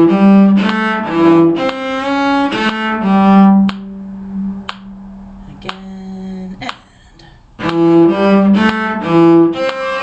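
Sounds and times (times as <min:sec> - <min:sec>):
low bowed string instrument: 0:00.0 - 0:06.8, 0:07.5 - 0:10.0.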